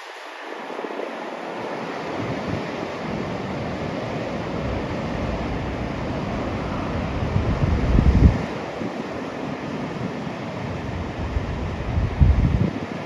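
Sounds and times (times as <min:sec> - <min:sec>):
snowstorm wind rushing: 0:00.0 - 0:13.0
wind buffeting microphone: 0:00.0 - 0:13.0.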